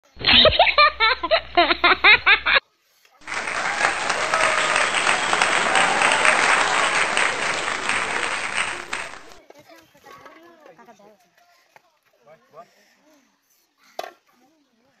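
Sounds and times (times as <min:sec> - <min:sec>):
applause: 0:03.2 - 0:09.4
faint voices: 0:03.2 - 0:09.4.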